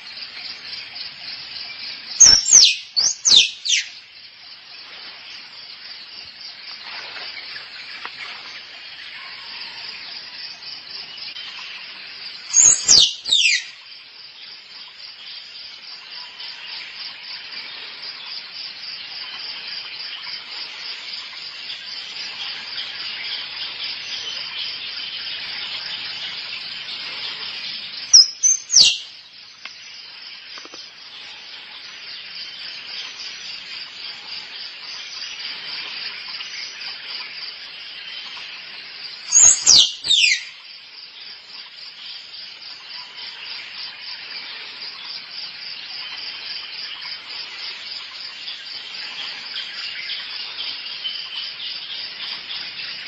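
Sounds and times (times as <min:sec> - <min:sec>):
pulsing insect chorus: 0:00.0 - 0:53.0
squirrel squeaky calls: 0:02.2 - 0:03.9, 0:12.6 - 0:13.7, 0:28.2 - 0:29.0, 0:39.3 - 0:40.5.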